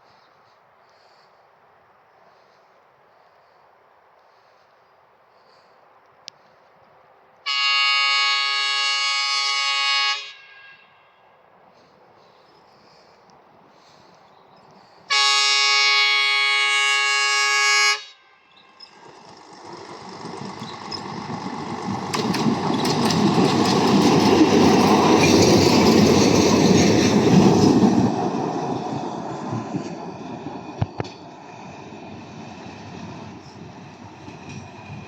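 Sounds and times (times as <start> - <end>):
railbus running noise: 0.0 - 35.0
railbus horn blast: 7.4 - 11.4, 15.1 - 18.6
wheels clicking over rail joints: 18.8 - 35.0.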